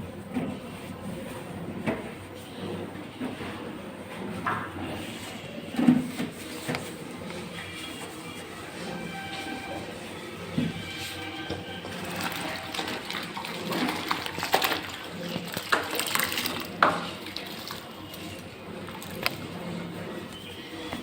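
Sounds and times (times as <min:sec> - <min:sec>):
plastic parts being scrubbed: 0:00.3 - 0:21.0
water splashing: 0:12.0 - 0:19.9.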